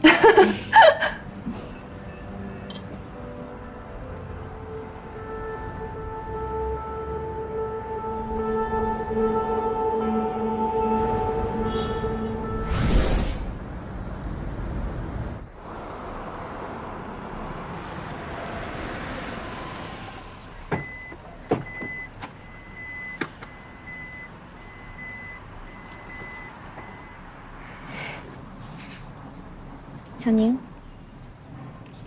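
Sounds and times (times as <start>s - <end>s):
car road noise: 1.2s - 30.1s
high car warning beep: 20.6s - 27.3s.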